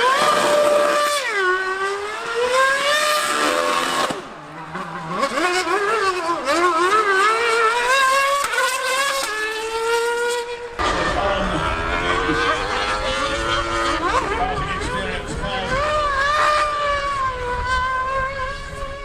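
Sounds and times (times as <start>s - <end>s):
racing engine revving: 0.0s - 19.0s.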